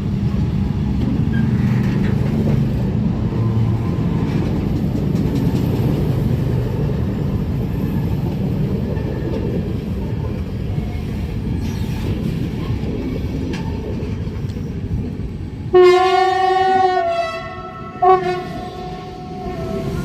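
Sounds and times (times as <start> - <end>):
train wheels rumbling on rails: 0.0 - 20.0
train horn: 15.7 - 20.0.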